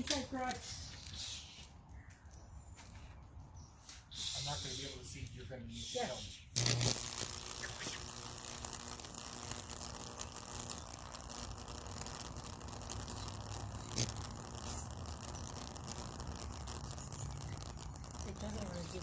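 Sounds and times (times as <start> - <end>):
electric arcs crackling through wood: 0.0 - 1.4, 6.5 - 19.0
electrical hum: 5.7 - 19.0.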